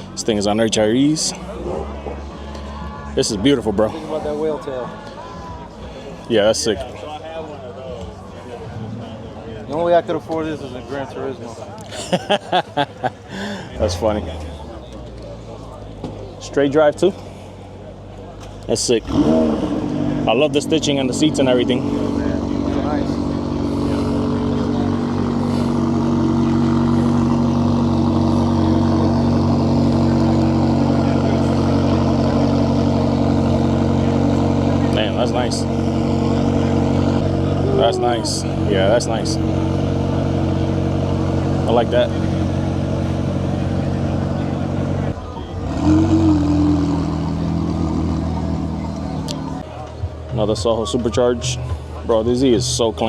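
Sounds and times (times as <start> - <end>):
car engine idling: 0.0 - 8.6, 12.6 - 53.0
louder engine note rising: 21.1 - 49.6.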